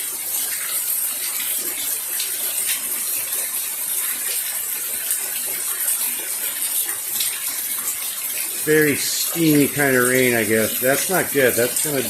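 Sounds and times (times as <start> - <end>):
louder drips and drops: 0.0 - 12.0
rain hissing: 7.3 - 12.0.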